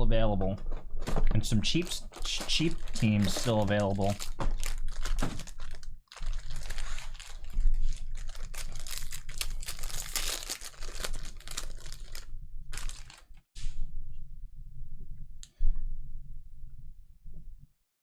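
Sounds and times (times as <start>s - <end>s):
plastic packaging crinkling and tearing: 1.7s - 13.4s.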